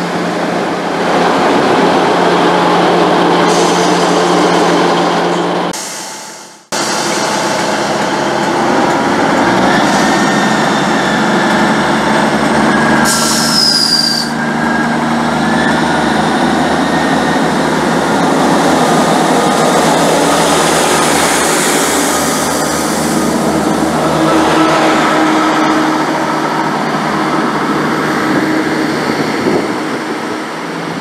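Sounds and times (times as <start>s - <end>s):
train rumbling past: 0.0s - 31.0s
high-pitched running gear squeal: 12.6s - 17.6s.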